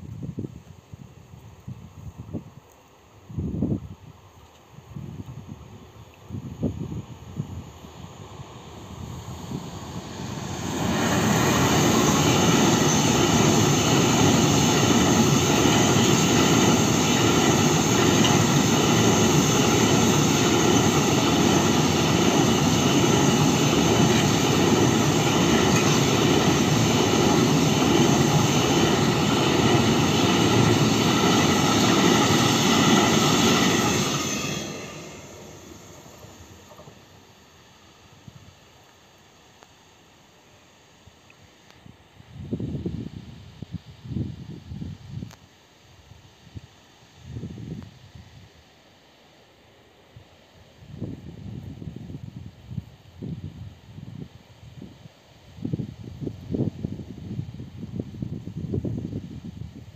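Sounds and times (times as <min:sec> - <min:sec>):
freight train wheels rumbling: 0:06.7 - 0:37.2.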